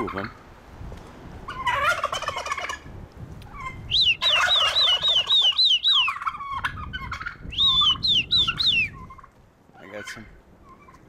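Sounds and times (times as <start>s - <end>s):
turkey gobbling: 1.5s - 2.9s, 3.5s - 11.0s
bird high rising-and-falling calls: 3.6s - 6.6s, 7.4s - 9.2s.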